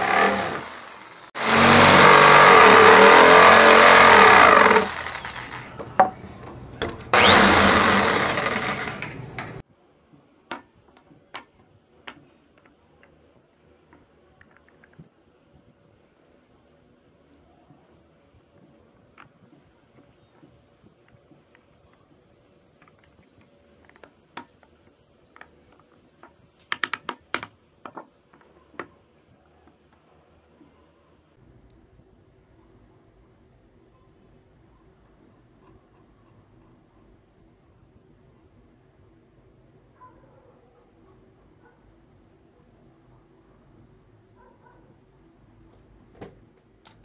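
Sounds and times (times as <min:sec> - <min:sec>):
power tool cutting wood: 0:00.0 - 0:06.2, 0:06.8 - 0:09.6.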